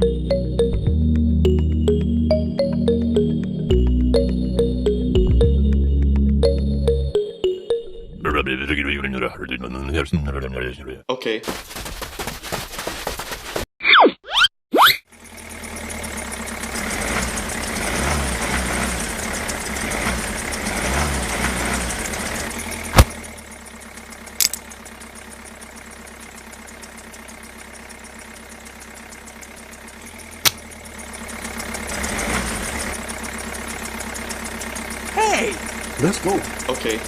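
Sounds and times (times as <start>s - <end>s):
engine running steadily: 15.1s - 37.0s
sharp clicks: 24.4s - 24.6s.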